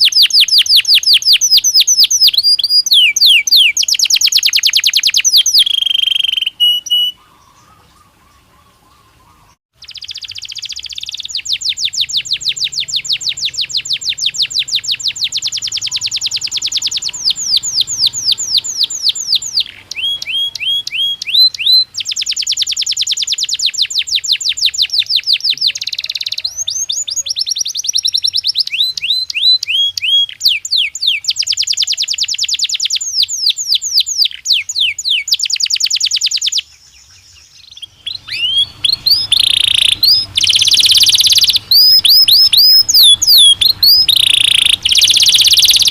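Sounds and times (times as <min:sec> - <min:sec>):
canary singing trills: 0:00.0 - 0:45.9.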